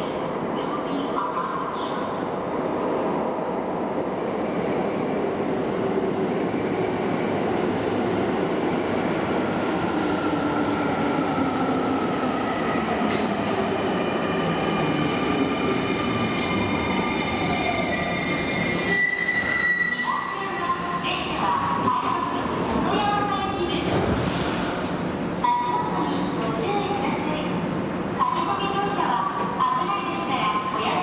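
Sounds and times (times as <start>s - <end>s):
electric train rumbling: 0.0s - 31.0s.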